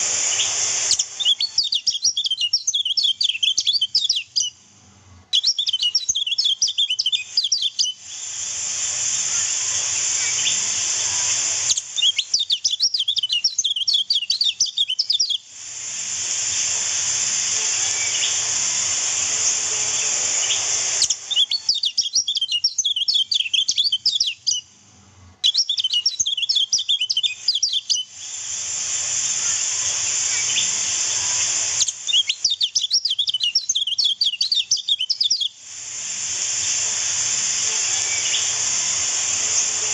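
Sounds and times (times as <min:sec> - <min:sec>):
bird twittering chirps: 0:00.0 - 0:04.6, 0:05.3 - 0:08.2, 0:10.0 - 0:15.4, 0:17.6 - 0:18.5, 0:19.2 - 0:24.7, 0:25.4 - 0:28.1, 0:29.8 - 0:35.6, 0:37.8 - 0:39.9.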